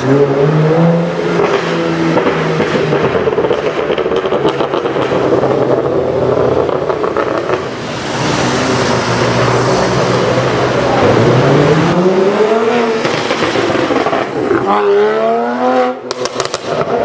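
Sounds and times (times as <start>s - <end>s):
car engine accelerating: 0.0s - 17.0s
car exhaust crackling and popping: 1.2s - 14.9s, 16.0s - 17.0s.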